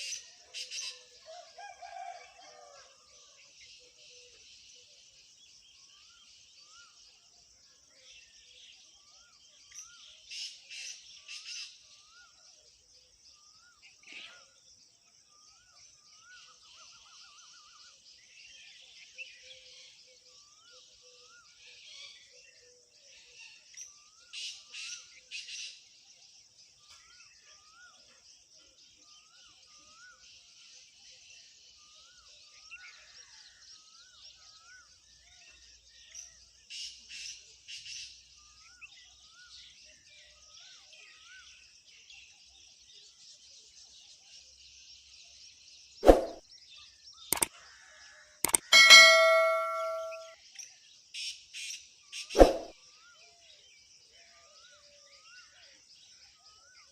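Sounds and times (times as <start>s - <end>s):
rising and falling chirps: 48.5s - 50.3s, 52.4s - 52.7s.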